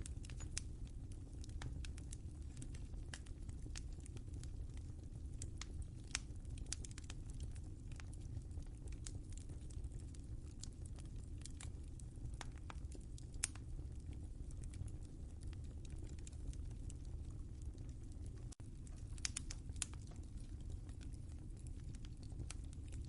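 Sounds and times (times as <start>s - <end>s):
low rumble of burning: 0.0s - 23.0s
wood fire crackling and popping: 0.0s - 23.0s.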